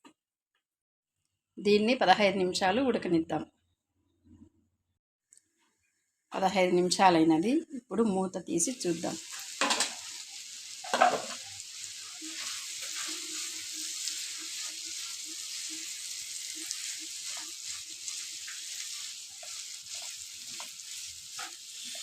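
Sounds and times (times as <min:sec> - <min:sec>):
curry sizzling in a pan: 0:08.6 - 0:22.0.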